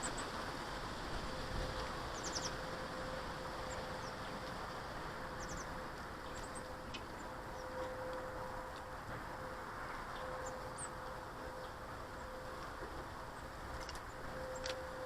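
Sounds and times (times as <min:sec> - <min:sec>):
faint constant hum: 0:00.0 - 0:15.0
small birds chirping: 0:02.1 - 0:02.6, 0:05.4 - 0:07.8.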